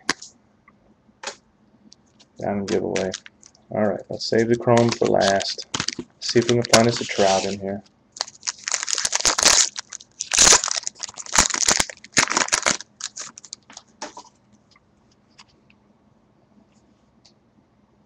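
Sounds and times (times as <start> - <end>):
faint wrapper crackles: 2.1 - 3.6, 4.6 - 7.6, 8.2 - 14.3
card pack wrapper crinkling: 2.7 - 3.6, 4.4 - 7.6, 8.2 - 14.2.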